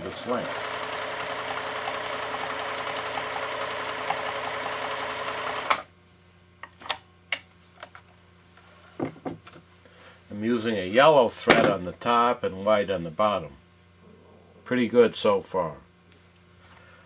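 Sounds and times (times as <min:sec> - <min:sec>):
sewing machine running: 0:00.0 - 0:05.9.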